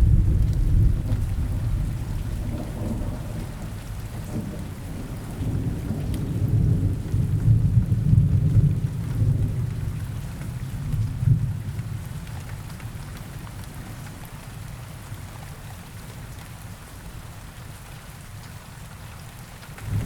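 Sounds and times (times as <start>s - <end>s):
distant thunder rumble: 0.0s - 9.6s, 19.8s - 20.0s
steady rain falling: 0.0s - 20.0s.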